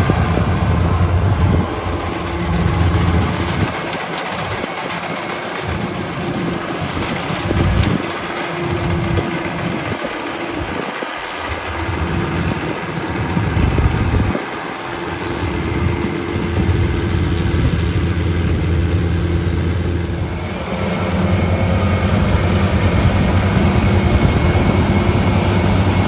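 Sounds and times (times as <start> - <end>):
combine harvester running: 0.0 - 26.0
wind rumbling on microphone: 0.0 - 26.0.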